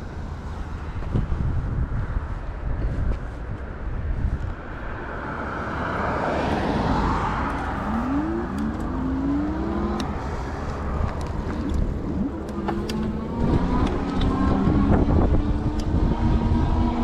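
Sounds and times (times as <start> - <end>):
wind buffeting microphone: 0.8 - 17.0
low hum rising in pitch: 7.2 - 17.0.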